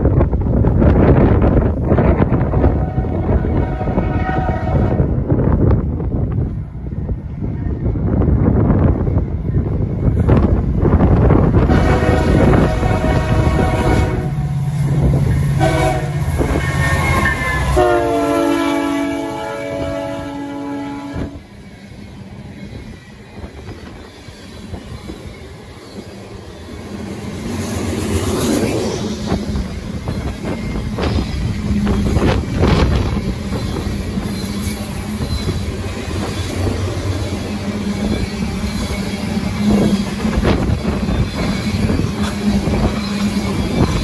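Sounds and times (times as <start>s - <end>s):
diesel locomotive engine droning: 0.0s - 44.0s
locomotive air horn blasts: 2.5s - 5.1s, 11.6s - 14.7s, 15.5s - 21.4s
train wheels clacking over rail joints: 22.7s - 44.0s.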